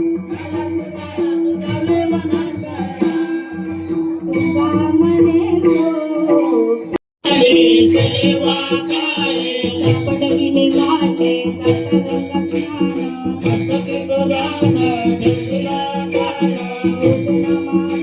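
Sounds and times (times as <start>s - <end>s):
jingling hand-cymbal strikes: 7.3s - 18.0s.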